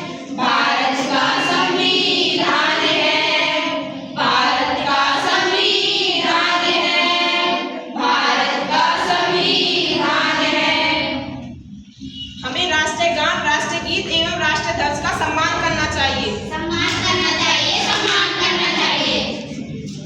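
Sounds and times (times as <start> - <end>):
choir singing: 0.0 - 11.5, 16.5 - 20.0.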